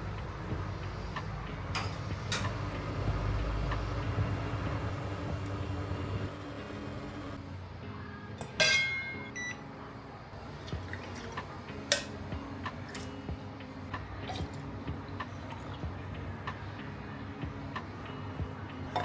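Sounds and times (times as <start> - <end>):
steady low hum: 0.0 - 8.3
ringing clink: 8.5 - 9.4.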